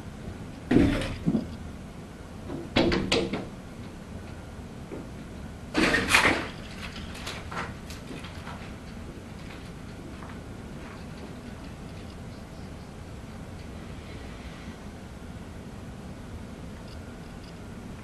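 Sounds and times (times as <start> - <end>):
cat paws rattling glass door: 5.8 - 10.1.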